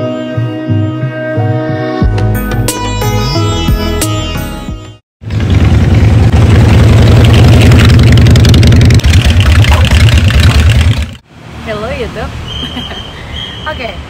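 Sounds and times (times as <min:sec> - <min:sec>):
motorcycle engine running: 0:05.2 - 0:11.2.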